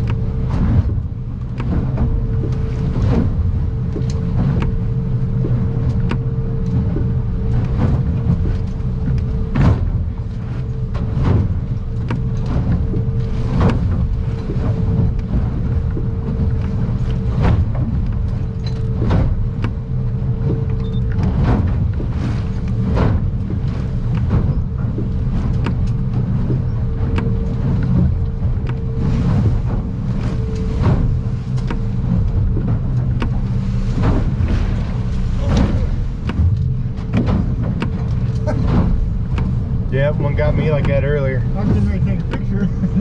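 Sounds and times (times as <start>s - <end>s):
hull slapping against waves: 0.0s - 43.0s
outboard motor droning: 0.0s - 43.0s.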